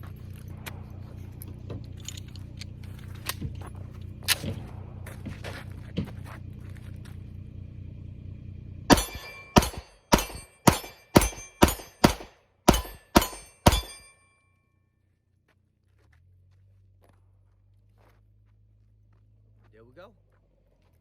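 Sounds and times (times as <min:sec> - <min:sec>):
low hum: 0:00.0 - 0:19.6
gunshots hitting steel target: 0:08.9 - 0:14.3.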